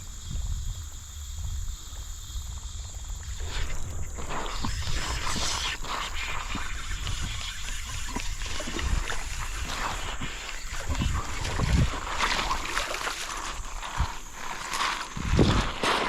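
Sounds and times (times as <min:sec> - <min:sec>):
wind rumble on microphone: 0:00.0 - 0:16.0
creek water splashing: 0:03.2 - 0:16.0.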